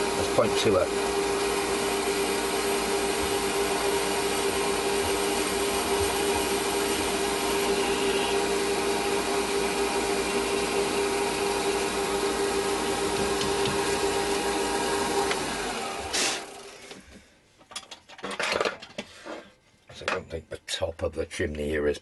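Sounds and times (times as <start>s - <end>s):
lathe motor hum: 0.0s - 16.8s.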